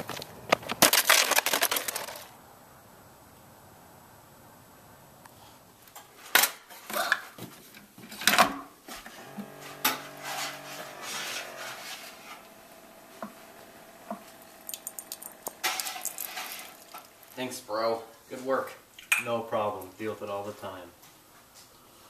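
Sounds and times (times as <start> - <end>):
hard objects clattering together: 0.0 - 2.3, 15.3 - 17.4.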